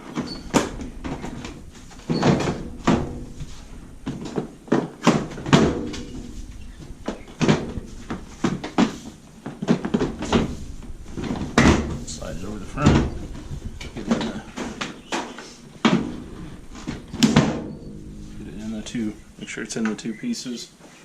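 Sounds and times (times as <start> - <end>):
washing machine cover knocking: 0.3 - 9.0, 9.6 - 15.0.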